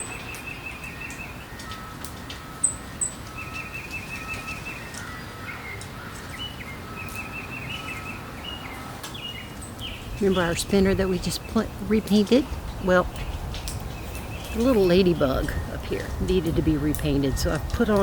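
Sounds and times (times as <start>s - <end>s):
birds chirping and singing: 0.0s - 18.0s
low background hiss: 9.3s - 18.0s.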